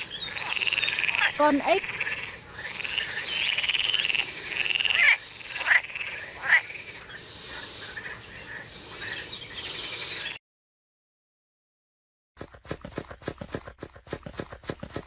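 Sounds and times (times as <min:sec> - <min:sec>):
frogs croaking: 0:00.0 - 0:10.4.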